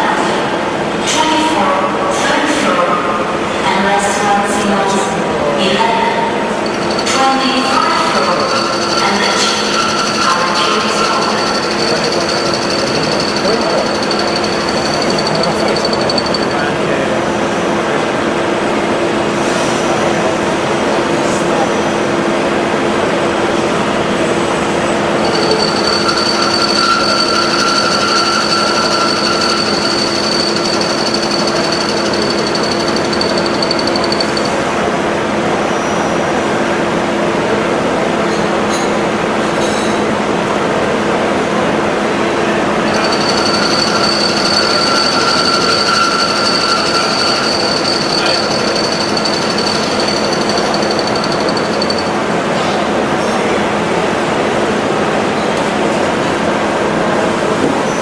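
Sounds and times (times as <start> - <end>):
high whine with fast chatter: 6.6 - 16.9, 25.2 - 34.6, 42.8 - 52.3
milling machine running: 6.7 - 16.6, 25.2 - 34.5, 42.9 - 52.1.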